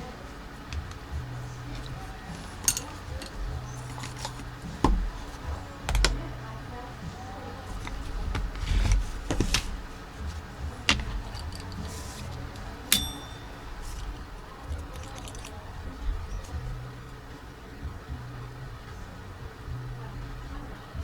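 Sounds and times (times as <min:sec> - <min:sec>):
low hum: 0:00.0 - 0:21.0
tools clicking and tapping: 0:00.7 - 0:06.3, 0:07.7 - 0:15.6.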